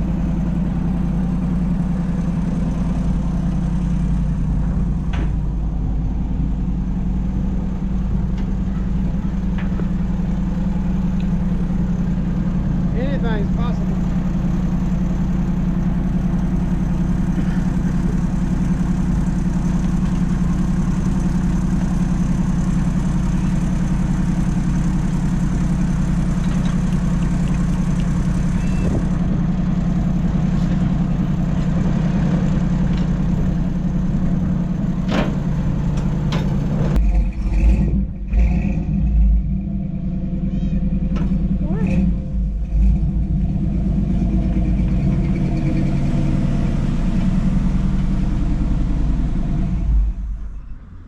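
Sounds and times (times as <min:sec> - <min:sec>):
vehicle engine droning: 0:00.0 - 0:51.0.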